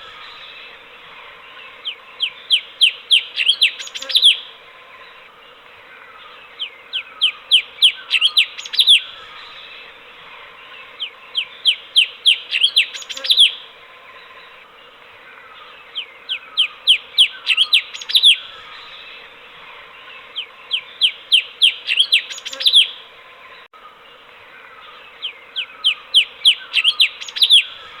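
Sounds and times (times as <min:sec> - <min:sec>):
background hiss: 0:00.0 - 0:28.0
bird whistling song: 0:01.8 - 0:04.5, 0:06.6 - 0:09.6, 0:11.0 - 0:13.6, 0:15.9 - 0:18.9, 0:20.4 - 0:23.0, 0:25.2 - 0:28.0.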